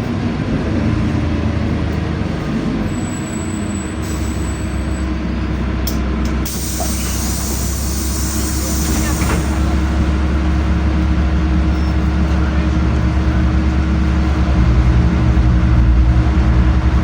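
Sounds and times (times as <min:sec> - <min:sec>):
bus engine drone with road noise: 0:00.0 - 0:17.0
high hissing: 0:06.5 - 0:09.6.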